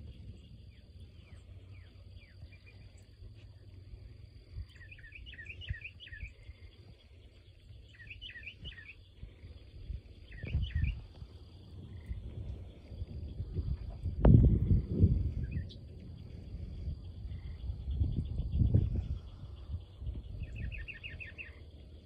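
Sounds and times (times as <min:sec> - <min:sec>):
low microphone rumble: 0:00.0 - 0:22.0
songbird singing rapid notes: 0:00.0 - 0:22.0.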